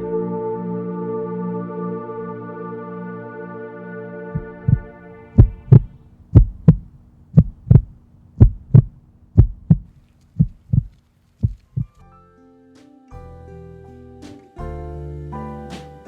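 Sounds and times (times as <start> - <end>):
heartbeat thumps: 4.4 - 12.0.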